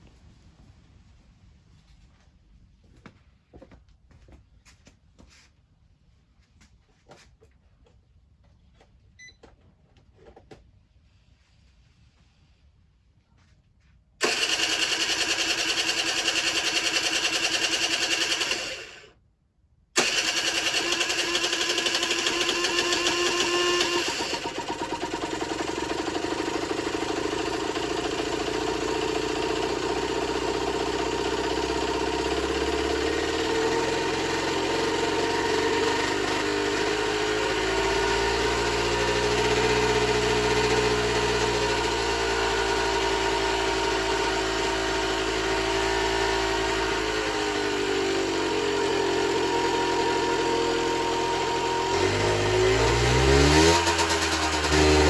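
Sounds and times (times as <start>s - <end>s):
two-stroke engine idling: 14.2s - 19.1s, 20.0s - 55.0s.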